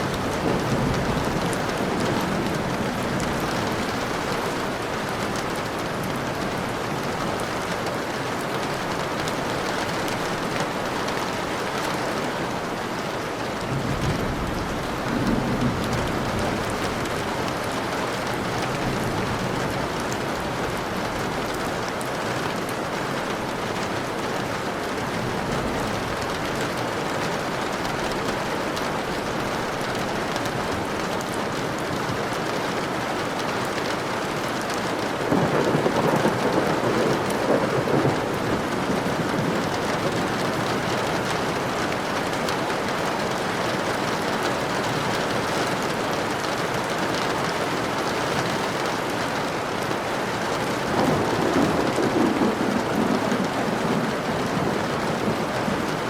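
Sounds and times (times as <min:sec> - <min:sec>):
steady rain: 0:00.0 - 0:56.0
thunder rolling: 0:13.7 - 0:20.3, 0:35.2 - 0:42.3, 0:50.9 - 0:56.0.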